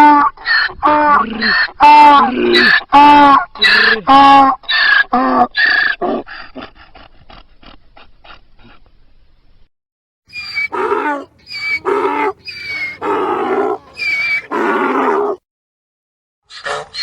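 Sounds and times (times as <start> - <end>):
donkey braying: 10.3 - 15.4.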